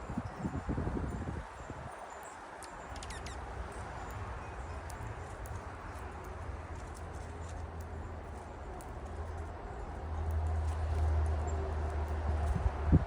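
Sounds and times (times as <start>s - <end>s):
small birds chirping: 1.5s - 10.4s.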